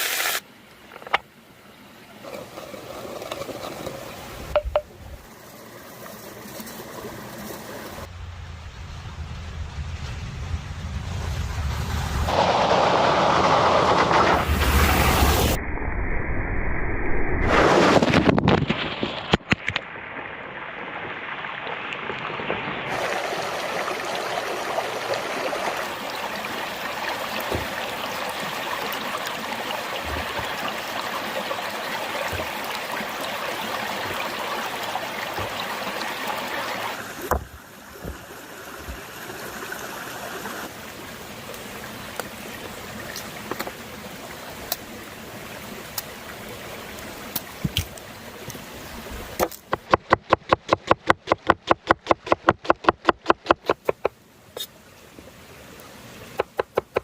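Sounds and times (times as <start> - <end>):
stream water rushing: 0.0 - 8.1, 19.7 - 57.0.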